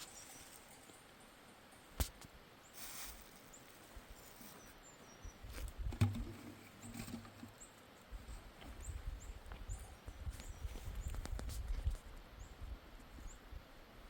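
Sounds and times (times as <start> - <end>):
brief hiss: 2.8 - 3.4.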